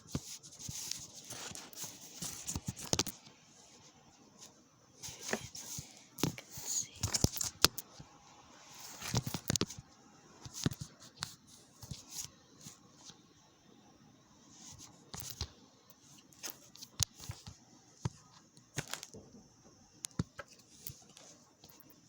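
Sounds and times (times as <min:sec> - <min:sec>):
handling noise clicks and crackles: 0:00.1 - 0:03.3, 0:16.4 - 0:19.2.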